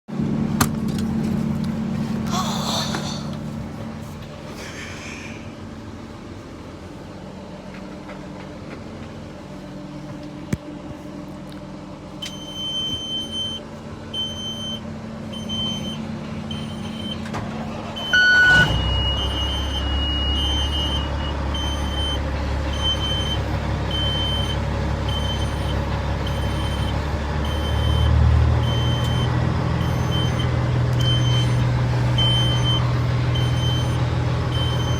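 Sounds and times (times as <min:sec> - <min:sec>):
truck engine cranking and idling: 0:00.1 - 0:34.9
truck warning chime beeping: 0:12.2 - 0:34.9.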